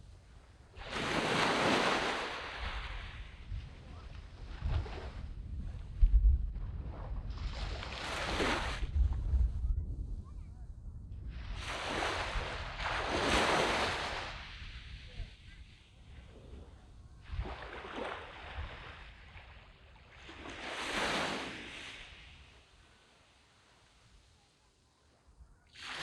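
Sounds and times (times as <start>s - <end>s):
small waves washing on beach: 0.2s - 9.2s, 11.3s - 26.0s.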